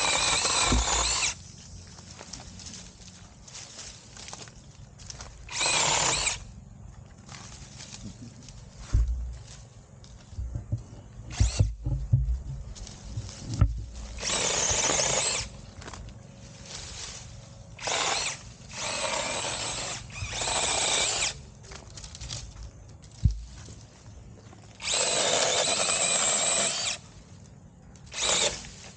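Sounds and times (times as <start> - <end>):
mini chainsaw cutting branches: 0.0 - 1.4, 5.1 - 6.5, 11.3 - 12.0, 13.3 - 16.0, 16.6 - 22.5, 24.7 - 27.4, 28.0 - 28.9
handling thumps: 8.8 - 14.2.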